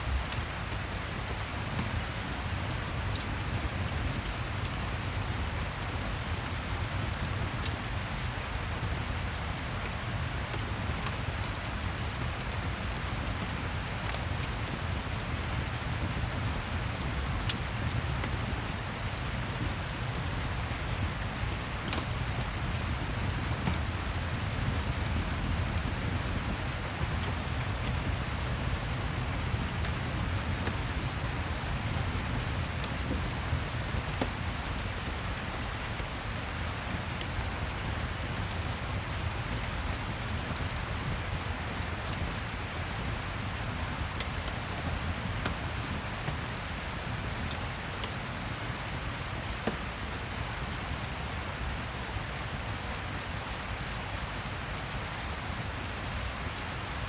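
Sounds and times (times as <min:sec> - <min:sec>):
rain falling: 0:01.0 - 0:57.0
fireplace crackling: 0:17.7 - 0:25.2.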